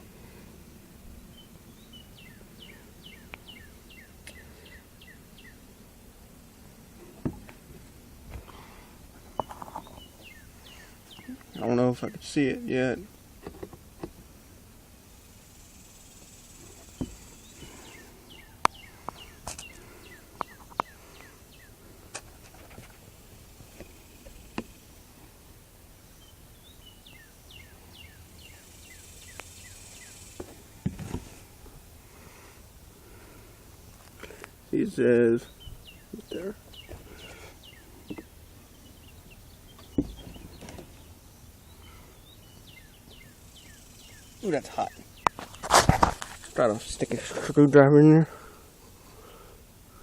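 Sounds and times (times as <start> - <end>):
bird chirping: 1.2 - 5.7, 9.3 - 13.0, 15.2 - 21.8, 26.0 - 30.5, 34.3 - 45.8
high insect trill: 7.4 - 31.7, 32.3 - 49.6.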